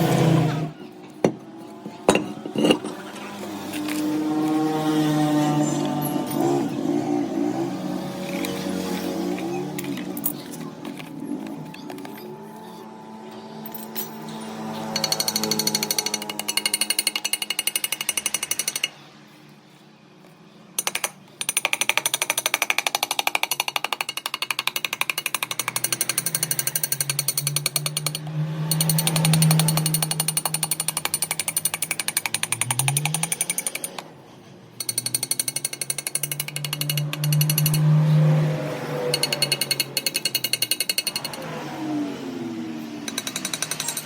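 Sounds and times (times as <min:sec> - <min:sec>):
power hammer hammering metal: 0:14.2 - 0:19.0, 0:20.8 - 0:34.0, 0:34.8 - 0:38.0, 0:39.1 - 0:41.5, 0:43.0 - 0:44.0.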